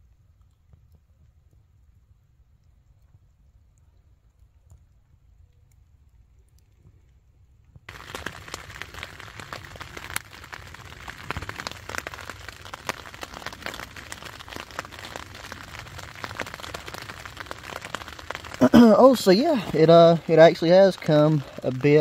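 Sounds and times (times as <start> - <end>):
rain pattering on tent: 7.7 - 22.0.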